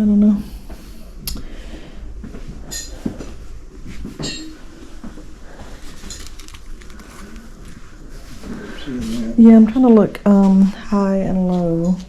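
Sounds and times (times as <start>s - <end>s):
small hard objects clinking: 6.0s - 7.6s.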